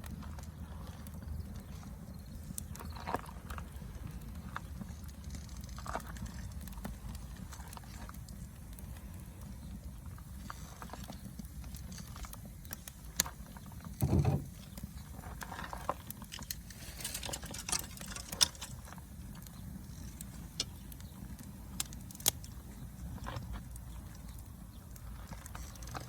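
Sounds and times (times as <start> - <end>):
wood fire crackling: 0.0 - 26.0
dull thud: 14.0 - 14.5.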